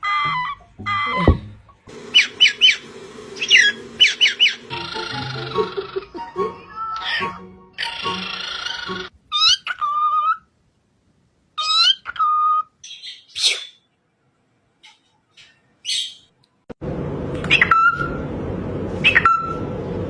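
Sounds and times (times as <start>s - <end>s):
parrot squeaks: 0.0s - 1.4s, 3.4s - 6.1s, 6.9s - 10.4s, 11.6s - 13.8s, 15.8s - 16.3s
parrot whistling calls: 2.0s - 6.1s, 7.8s - 10.2s, 19.0s - 19.6s.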